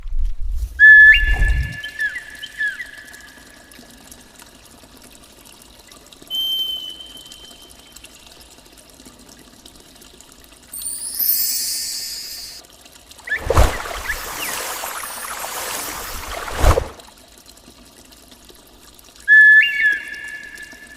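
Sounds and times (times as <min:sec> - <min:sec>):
water pouring: 0:01.4 - 0:19.2
high steady tone: 0:10.7 - 0:12.6
brief higher tone: 0:10.8 - 0:12.6.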